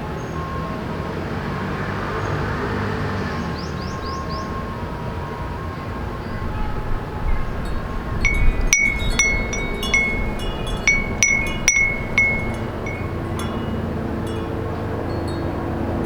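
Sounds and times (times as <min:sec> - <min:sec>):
city traffic hum: 0:00.0 - 0:16.0
wind chime ringing: 0:06.3 - 0:16.0.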